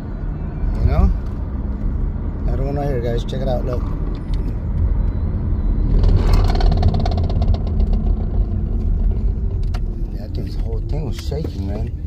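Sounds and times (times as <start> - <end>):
car road rumble: 0.0 - 12.0
rapid rattle from front end: 6.2 - 9.6.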